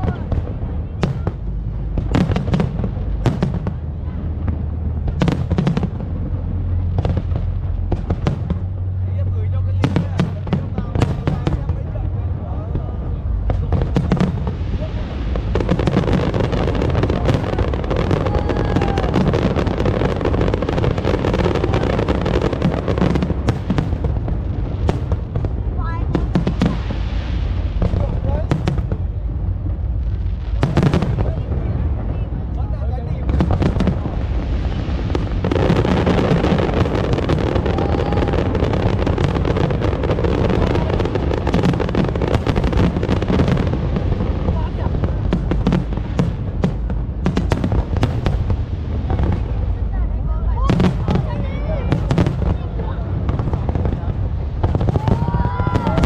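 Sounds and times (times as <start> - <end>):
fireworks crackling and popping: 0.0 - 56.0
low rumble: 0.0 - 56.0.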